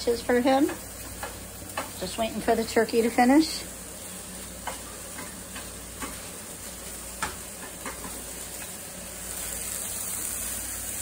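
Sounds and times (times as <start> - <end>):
meat sizzling in a frying pan: 0.0 - 11.0
spatula scraping and tapping pan: 0.4 - 2.6, 4.0 - 8.8.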